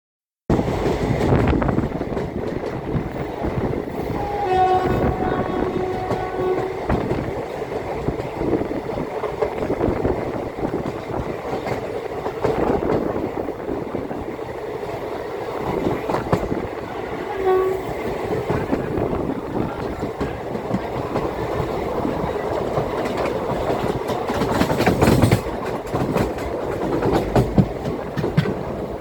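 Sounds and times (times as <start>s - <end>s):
train coaches rumbling on rails: 0.5s - 29.0s
locomotive horn: 4.0s - 7.0s, 17.0s - 18.1s.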